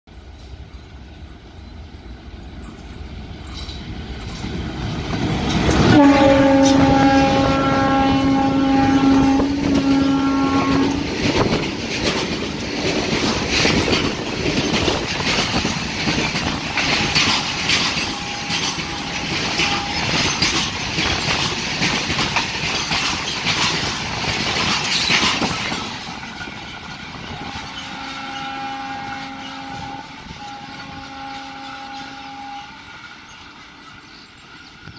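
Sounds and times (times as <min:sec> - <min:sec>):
clickety-clack of train wheels: 0:00.1 - 0:34.9
train horn: 0:05.7 - 0:11.6, 0:16.7 - 0:20.6, 0:27.3 - 0:33.2
freight wagons rattling past: 0:09.2 - 0:34.9.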